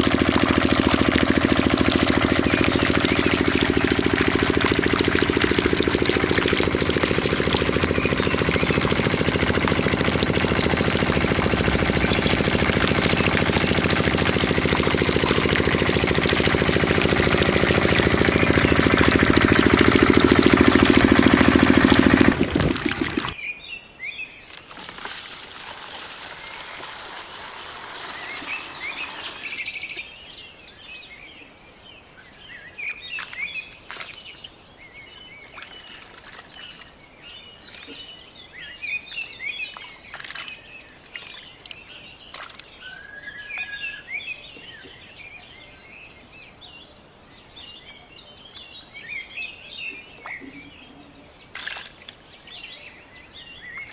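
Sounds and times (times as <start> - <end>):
small diesel pump engine running: 0.0 - 23.4
water pouring: 0.0 - 23.4, 24.7 - 29.6
birds chirping: 0.0 - 23.5, 24.2 - 31.1, 32.7 - 53.9.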